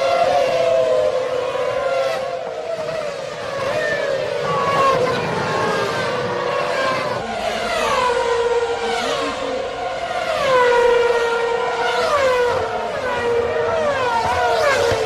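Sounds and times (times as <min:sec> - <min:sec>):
racing cars passing at high revs: 0:00.0 - 0:15.0.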